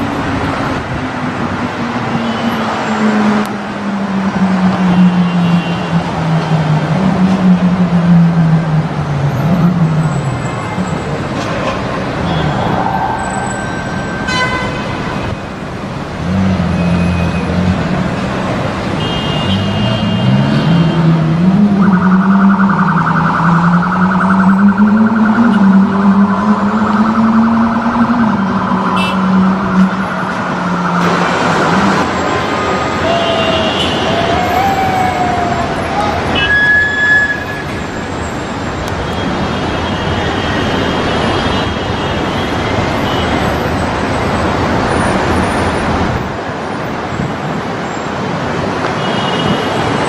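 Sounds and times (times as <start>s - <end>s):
car engines revving: 0.0s - 14.2s, 14.9s - 36.6s
pulsing alarm-like tone: 21.5s - 31.8s.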